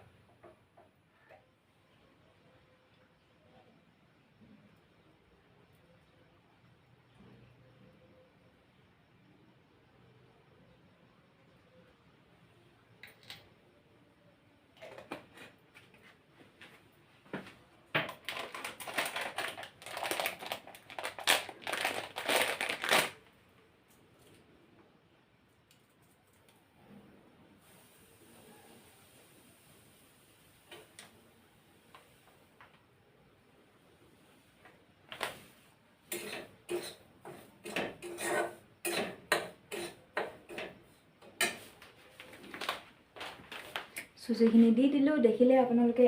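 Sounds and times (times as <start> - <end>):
crinkling and crunching handling: 14.8 - 24.5, 41.7 - 44.7
metal spoon clinking on cookware: 36.1 - 40.7.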